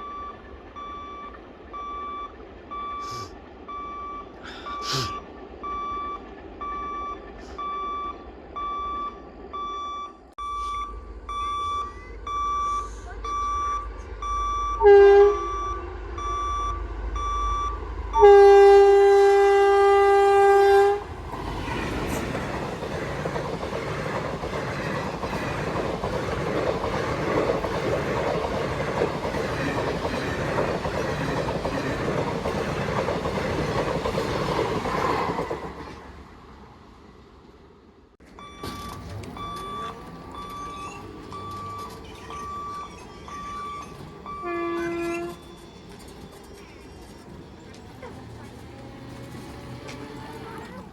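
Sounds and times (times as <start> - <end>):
level crossing warning beeper: 0.0 - 34.6, 38.2 - 50.9
train wheels rumbling on rails: 10.7 - 37.7, 38.4 - 50.9
train horn blasts: 14.8 - 16.0, 18.1 - 21.1, 44.3 - 45.5.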